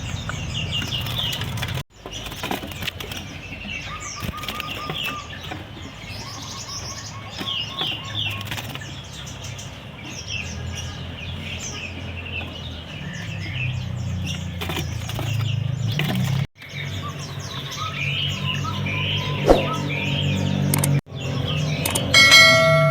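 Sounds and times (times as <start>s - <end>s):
wing fluttering: 0.0s - 5.7s, 7.4s - 9.7s, 14.2s - 18.5s, 19.2s - 20.1s
songbirds chirping and trilling: 0.0s - 22.9s.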